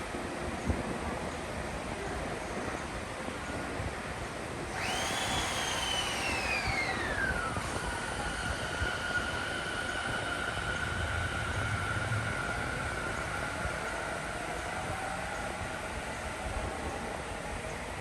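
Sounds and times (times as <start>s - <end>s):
train running noise: 0.0s - 18.0s
electric motor whine: 4.7s - 13.2s.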